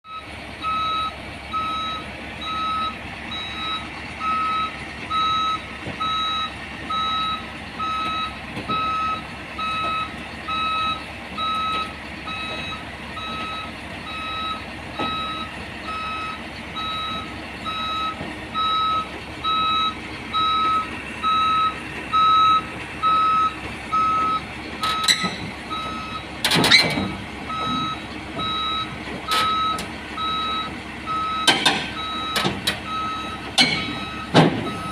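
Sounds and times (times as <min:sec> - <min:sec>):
truck engine running: 0:00.1 - 0:34.9
truck reversing alarm beeping: 0:00.1 - 0:34.9
sharp metal clanks: 0:31.4 - 0:32.8, 0:33.6 - 0:34.6.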